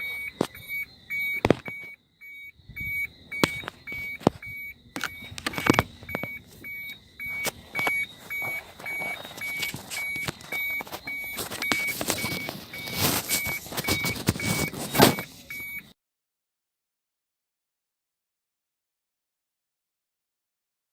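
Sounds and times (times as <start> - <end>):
electronic beeper beeping: 0.0 - 15.9
clicks and knocks: 1.4 - 2.0.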